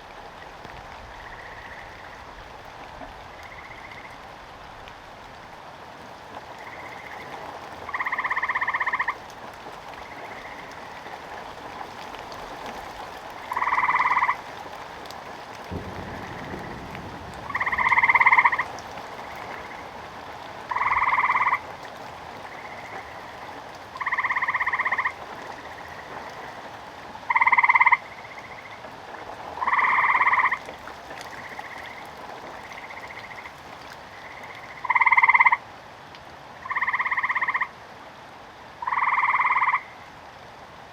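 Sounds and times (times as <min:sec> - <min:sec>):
rain hissing: 0:00.0 - 0:35.0
faint frog calling: 0:01.1 - 0:02.4, 0:03.3 - 0:04.4, 0:06.5 - 0:11.9, 0:13.4 - 0:14.6, 0:15.8 - 0:28.9, 0:29.5 - 0:35.7, 0:36.6 - 0:37.8, 0:38.8 - 0:40.2
frog croaking loudly: 0:07.9 - 0:09.2, 0:17.4 - 0:19.9, 0:20.7 - 0:21.6, 0:22.5 - 0:25.2, 0:27.3 - 0:28.7, 0:29.6 - 0:30.6, 0:34.2 - 0:35.6, 0:36.6 - 0:37.7, 0:38.8 - 0:40.0
low thunder rumble: 0:15.6 - 0:21.4.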